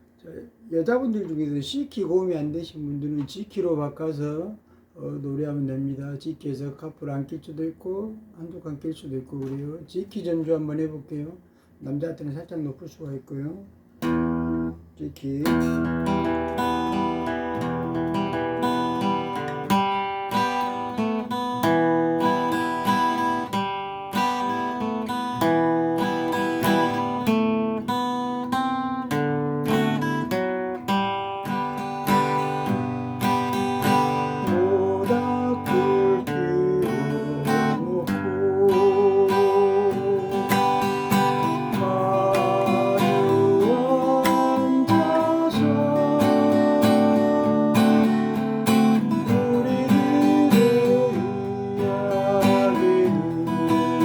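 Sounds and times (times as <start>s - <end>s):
acoustic guitar strumming: 14.0s - 54.0s.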